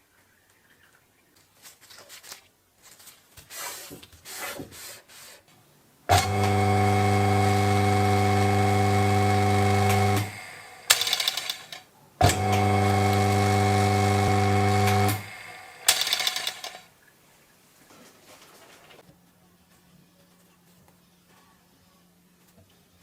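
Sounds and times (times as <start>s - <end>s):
loud steady machine hum: 6.1s - 11.6s, 12.2s - 16.8s
parts scraping and rubbing: 9.6s - 11.8s, 13.4s - 16.9s.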